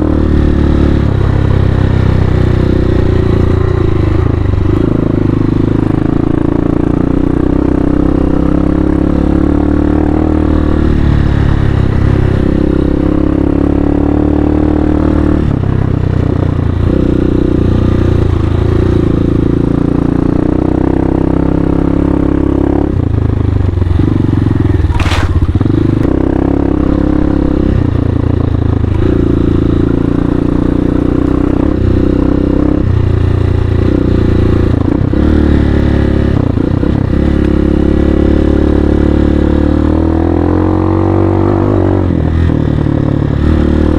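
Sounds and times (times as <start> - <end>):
motorcycle engine under load: 0.0 - 41.0.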